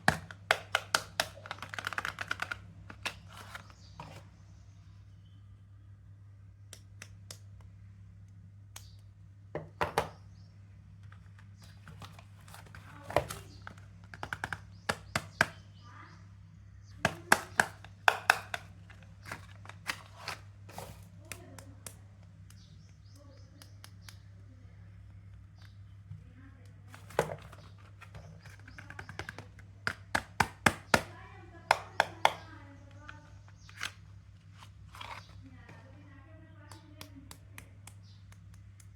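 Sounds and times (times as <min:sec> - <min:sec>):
soap wrapper crinkling: 0:00.0 - 0:04.2.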